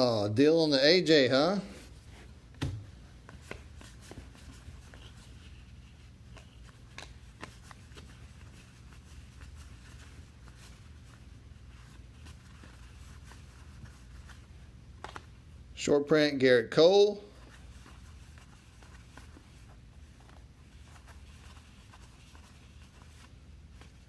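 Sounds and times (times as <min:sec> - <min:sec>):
low steady hum: 0:00.0 - 0:24.0
soft rustles: 0:01.6 - 0:15.6, 0:17.3 - 0:24.0
trading cards being flipped: 0:02.5 - 0:05.4, 0:06.2 - 0:10.8, 0:12.2 - 0:15.4.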